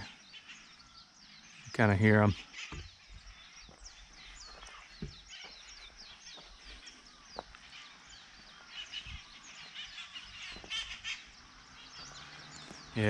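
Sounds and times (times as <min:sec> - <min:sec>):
faint low knocks: 0:05.0 - 0:05.6
parrots calling shrilly: 0:09.7 - 0:11.3.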